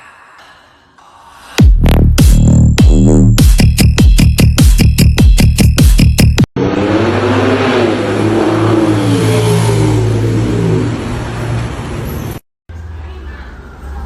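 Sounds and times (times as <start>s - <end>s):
electronic dance music: 1.6s - 6.5s
car engine revving: 1.8s - 12.4s.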